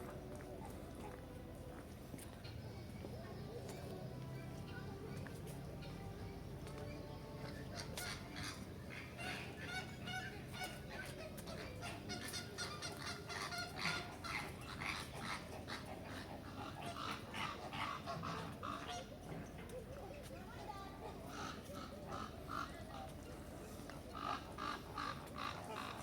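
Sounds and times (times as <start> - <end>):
many birds calling: 6.7 - 19.7, 24.1 - 26.0.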